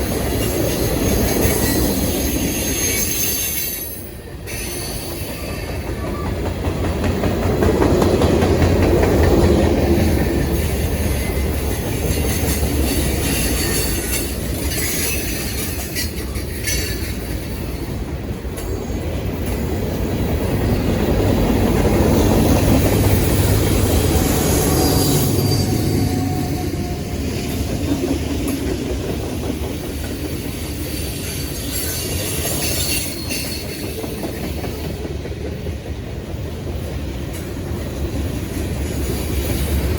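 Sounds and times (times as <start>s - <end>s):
train wheels clattering over rails: 0.0s - 39.9s
flange squeal: 24.0s - 27.6s.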